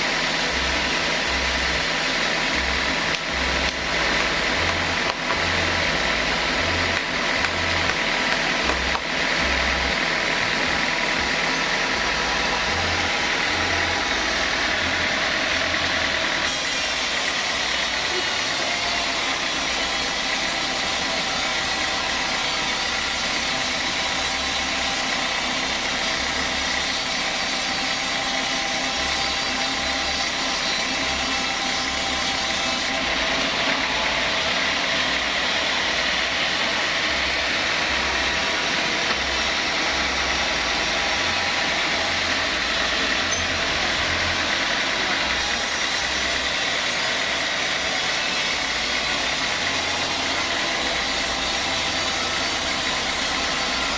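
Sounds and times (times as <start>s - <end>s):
sawmill machinery running: 0.0s - 53.9s.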